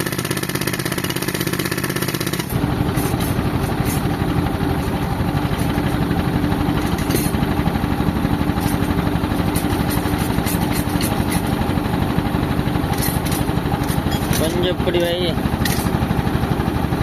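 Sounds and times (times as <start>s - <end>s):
pneumatic concrete breaker: 0.0s - 17.0s
tractor engine running compressor: 0.0s - 17.0s.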